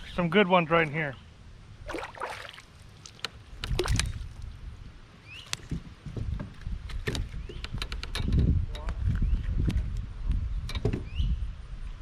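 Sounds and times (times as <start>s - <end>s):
water sloshing around hull: 1.8s - 4.6s.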